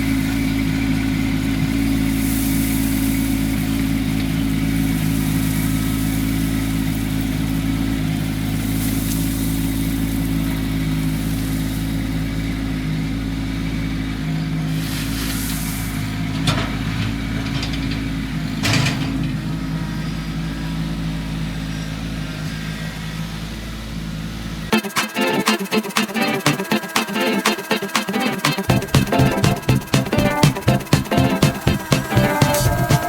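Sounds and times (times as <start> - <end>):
tractor diesel engine running: 28.7 - 33.0.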